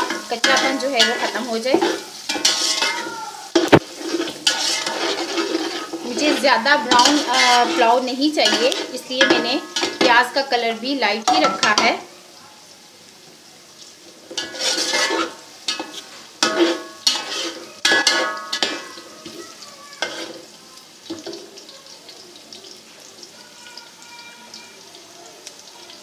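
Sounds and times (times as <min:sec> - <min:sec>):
spoon scraping a metal pot: 0:00.0 - 0:10.3, 0:14.3 - 0:19.4, 0:20.0 - 0:20.4
onions sizzling in a pot: 0:00.0 - 0:26.0.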